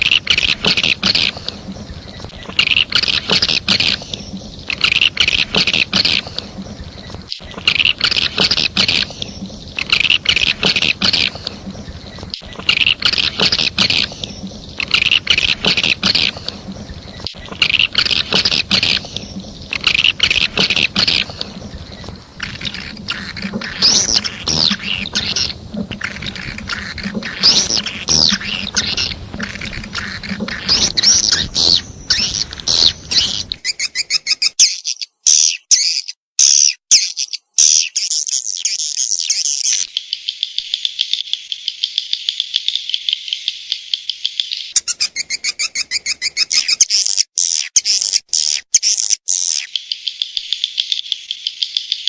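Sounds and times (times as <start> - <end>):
background hiss: 0.0 - 33.6
birds twittering chirps: 0.0 - 42.4.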